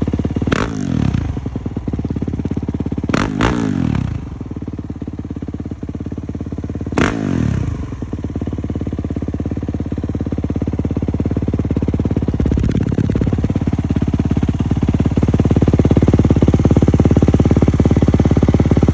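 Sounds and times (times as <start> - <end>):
motocross engine idling: 0.0 - 18.9.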